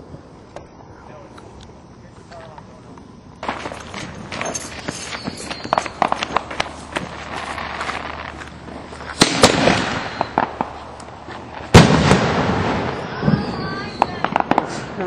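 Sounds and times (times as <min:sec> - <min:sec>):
fireworks crackling: 0:00.0 - 0:15.0
firework pops: 0:02.3 - 0:15.0
loud firework bang: 0:03.4 - 0:15.0.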